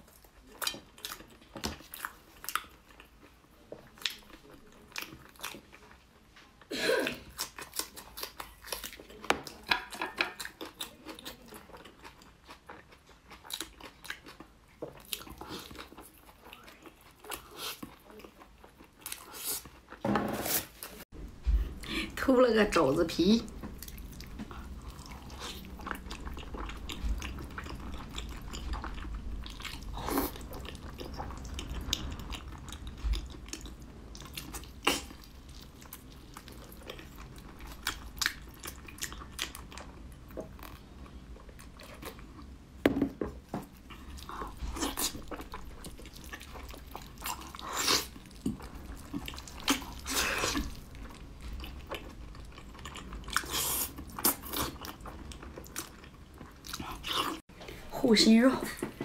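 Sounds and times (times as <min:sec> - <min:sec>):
biting and chewing meat: 0:43.4 - 0:57.5.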